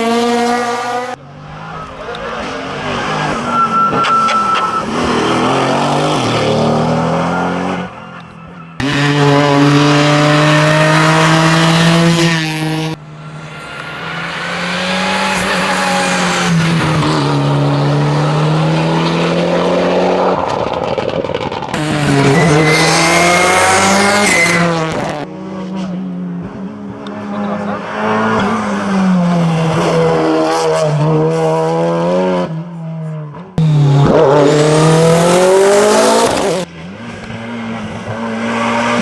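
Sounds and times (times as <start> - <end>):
race car engines at hard throttle: 0.0 - 39.0.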